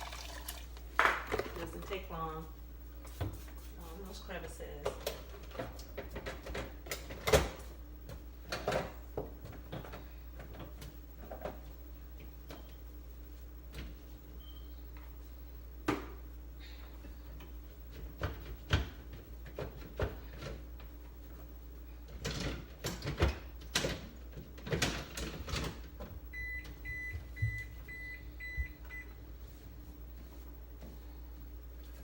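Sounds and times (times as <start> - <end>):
knocks and clatter in fridge: 18.0 - 20.6, 22.1 - 26.2
refrigerator alarm beeping: 26.3 - 29.2.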